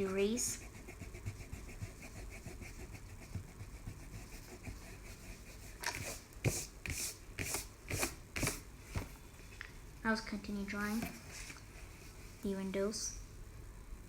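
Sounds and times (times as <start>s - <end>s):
eraser rubbing on paper: 0.0s - 8.6s.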